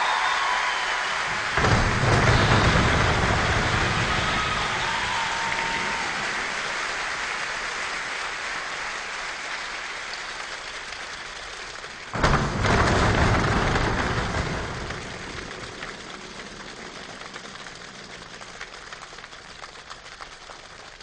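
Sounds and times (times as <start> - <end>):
imitated thunderclap: 0.2 - 7.1, 12.1 - 19.0.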